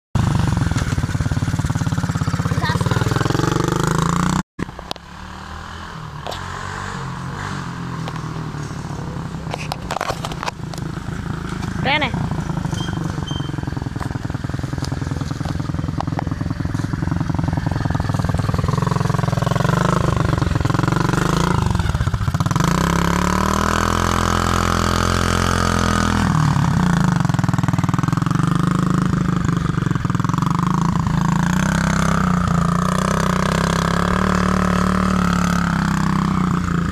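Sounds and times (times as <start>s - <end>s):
motorbike engine revving: 0.2s - 36.9s.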